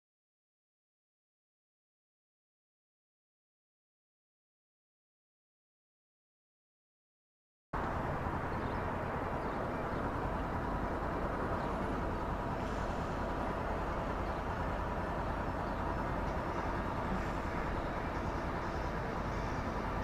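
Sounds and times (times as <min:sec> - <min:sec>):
road and wind noise: 0:07.8 - 0:20.0.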